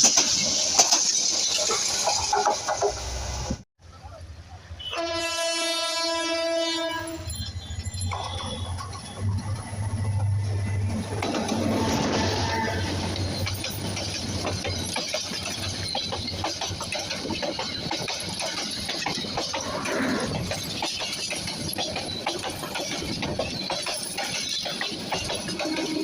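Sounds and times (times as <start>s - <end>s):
train wheels clattering on rails: 0.0s - 3.6s, 7.8s - 26.0s.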